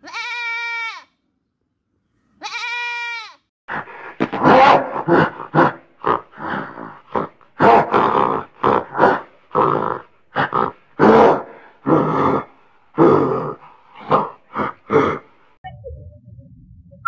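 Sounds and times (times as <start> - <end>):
gorilla calling: 3.8 - 15.2.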